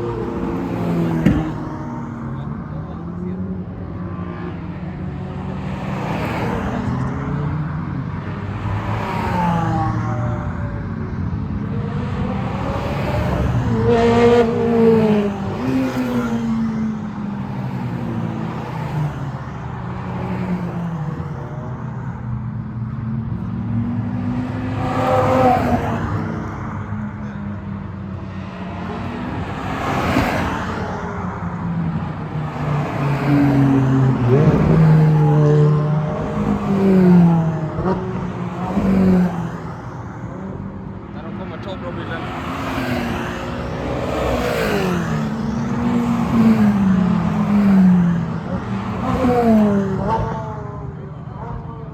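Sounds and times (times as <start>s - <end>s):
sports cars driving past: 0.0s - 51.9s.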